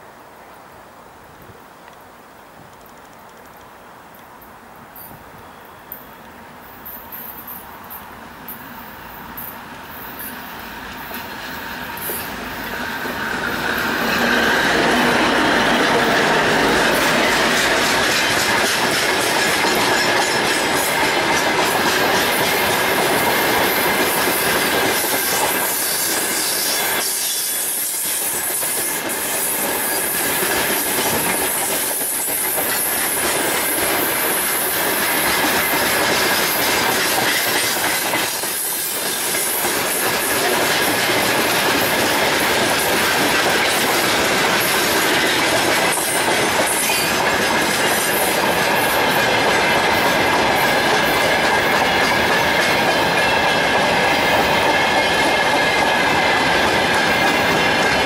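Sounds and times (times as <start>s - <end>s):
steady high squeal: 5.0s - 40.6s
diesel locomotive passing: 6.2s - 58.0s
wheels clattering over rail joints: 11.0s - 27.3s, 28.5s - 58.0s.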